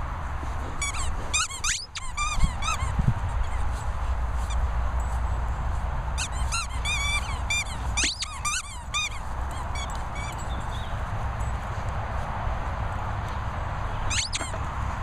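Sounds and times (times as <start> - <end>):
dog whining: 6.2 - 10.4, 14.1 - 14.6.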